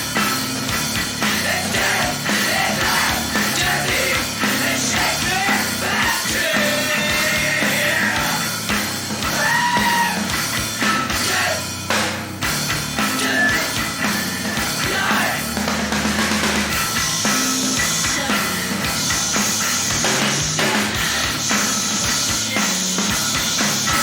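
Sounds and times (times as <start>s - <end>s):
heavy rock music: 0.0s - 24.0s
shouted vocals: 1.2s - 8.6s, 9.2s - 11.8s, 13.0s - 15.7s.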